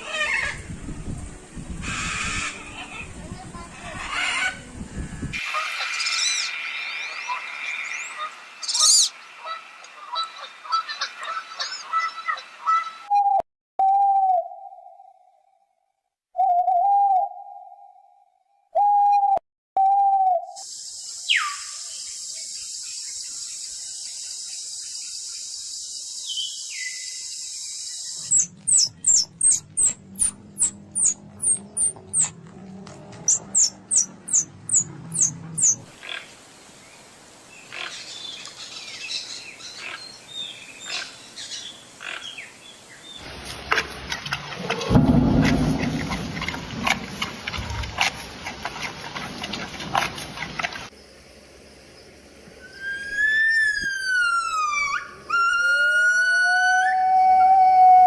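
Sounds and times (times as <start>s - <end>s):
steady high hiss: 5.4s - 11.9s, 20.6s - 28.5s, 35.9s - 44.1s, 50.9s - 53.6s
wavering bird calls: 5.5s - 13.4s, 26.3s - 32.3s, 33.3s - 36.4s, 37.6s - 43.3s, 52.6s - 57.8s
falling whistles: 52.6s - 58.0s.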